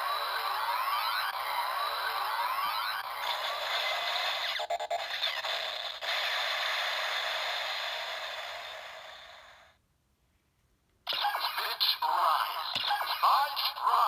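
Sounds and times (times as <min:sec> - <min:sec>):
toy speaker noisy rush: 0:00.0 - 0:09.7, 0:11.1 - 0:14.0.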